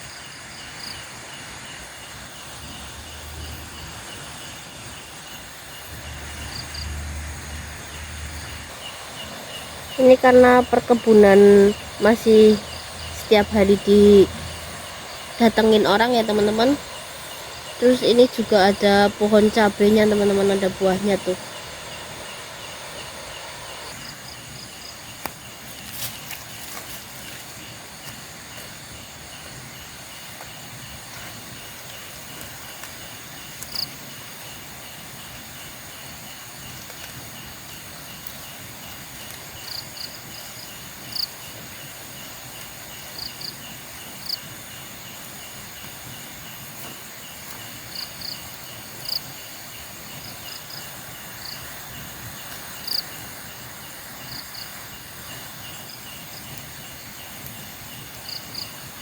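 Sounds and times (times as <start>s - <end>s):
crickets chirping: 0.0s - 59.0s
high buzzing drone: 5.7s - 24.1s.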